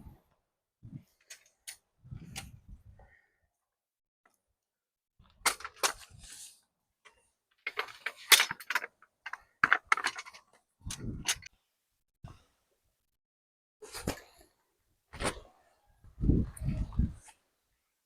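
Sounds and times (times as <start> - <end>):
objects clicking and knocking: 7.0 - 11.5.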